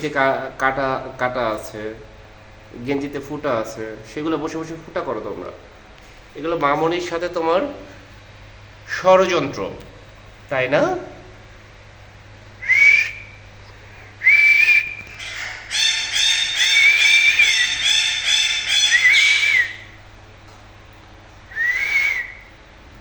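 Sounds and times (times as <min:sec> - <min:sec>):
parakeet whistling: 0:12.6 - 0:20.0, 0:21.5 - 0:22.5.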